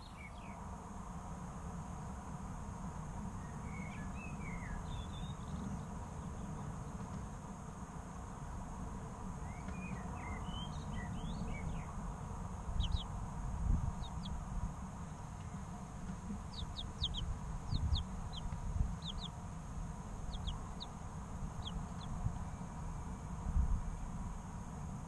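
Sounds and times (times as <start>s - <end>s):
soft curved chick calls: 8.2s - 24.4s
steady low rumble: 11.1s - 25.0s
chicks peeping: 12.6s - 22.5s.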